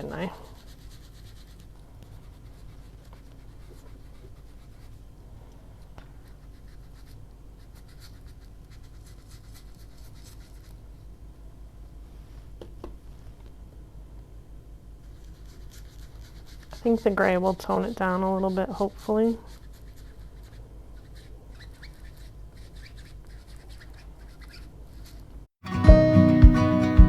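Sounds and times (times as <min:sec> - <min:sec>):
applicator scratching on paper: 0:00.0 - 0:05.1, 0:05.8 - 0:10.8, 0:15.0 - 0:25.3.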